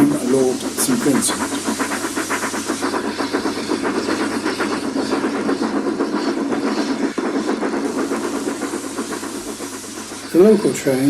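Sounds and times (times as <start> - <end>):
fast steam chuff: 0.0 - 11.0.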